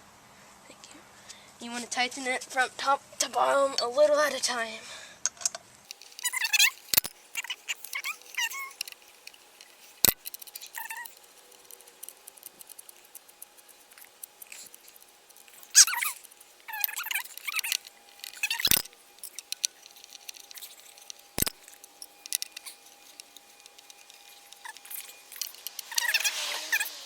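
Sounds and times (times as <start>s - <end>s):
allen key clicking and scraping: 5.4s - 27.0s
small metal ticks: 5.4s - 27.0s
brief squeaks: 6.2s - 9.0s, 15.6s - 22.8s, 23.5s - 27.0s.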